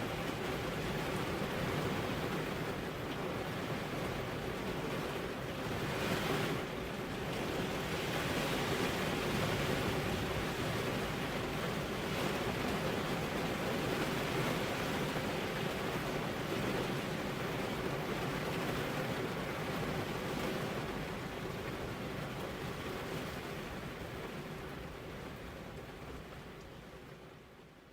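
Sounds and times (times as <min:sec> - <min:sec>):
heavy rain falling: 0:00.0 - 0:27.7.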